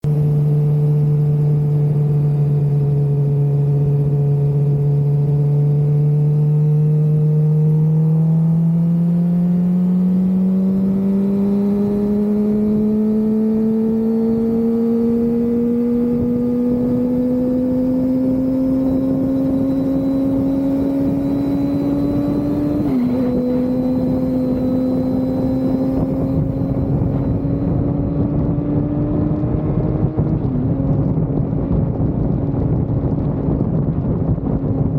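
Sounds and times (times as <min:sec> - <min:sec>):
motorcycle engine accelerating: 0:00.0 - 0:34.9
rushing wind noise: 0:11.4 - 0:34.9.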